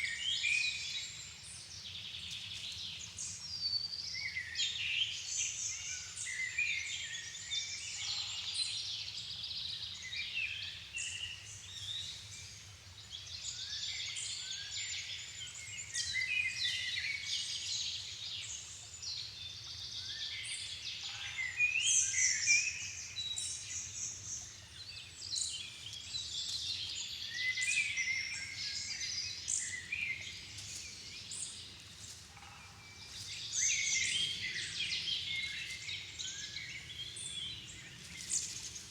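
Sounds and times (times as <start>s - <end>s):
songbirds singing: 19.5s - 38.9s.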